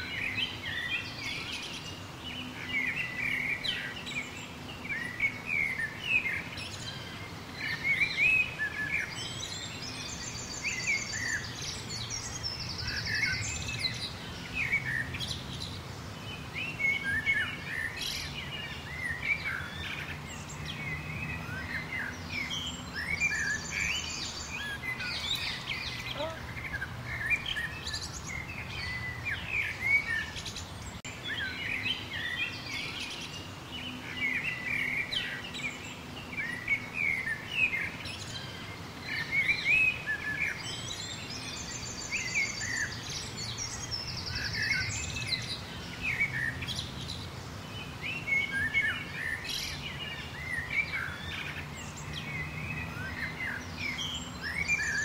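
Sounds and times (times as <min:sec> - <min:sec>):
wild birds chirping and whistling: 0:00.0 - 0:55.0.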